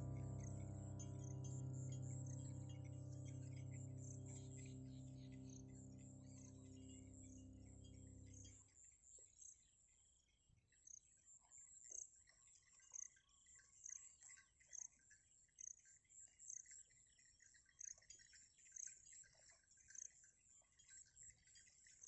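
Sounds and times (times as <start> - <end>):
held musical chord: 0.0 - 8.5.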